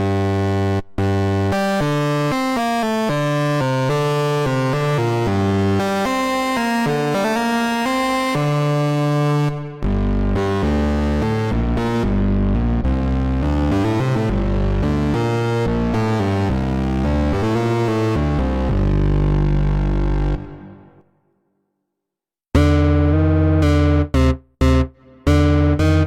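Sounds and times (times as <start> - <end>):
deep synthesizer bass line: 4.4 - 21.0, 22.6 - 26.0.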